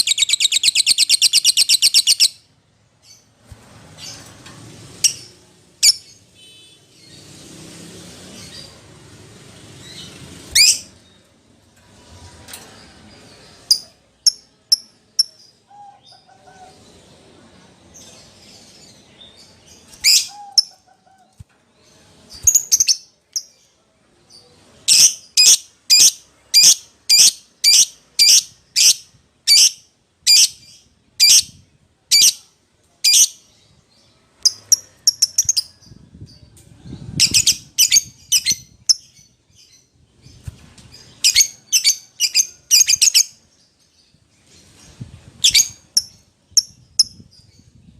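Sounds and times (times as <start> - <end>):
lovebird shrill chirps: 0.0 - 2.4.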